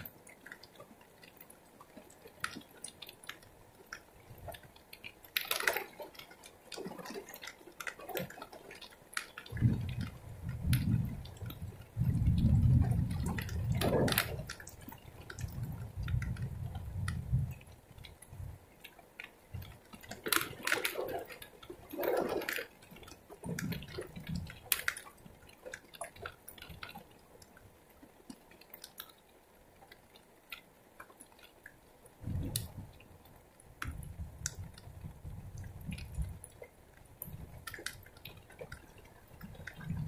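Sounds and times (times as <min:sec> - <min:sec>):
drops dripping and spattering: 0:00.0 - 0:40.0
heavy rain falling: 0:09.4 - 0:17.6.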